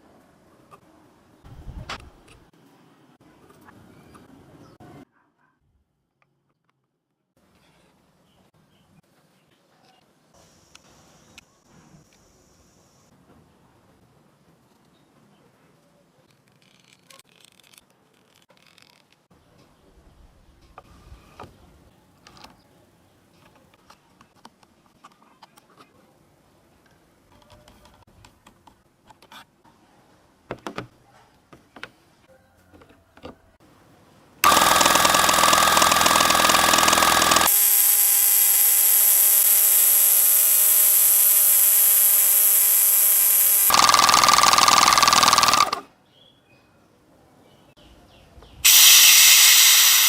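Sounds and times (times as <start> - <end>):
electric air compressor running: 34.4 - 45.8, 48.6 - 50.0.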